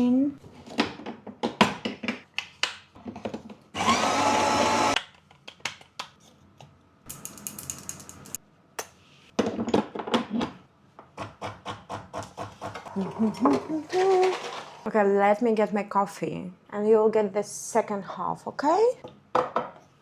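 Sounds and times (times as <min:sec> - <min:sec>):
coffee grinder whirring: 0:03.8 - 0:05.0
clicks and knocks of handling: 0:05.0 - 0:10.6.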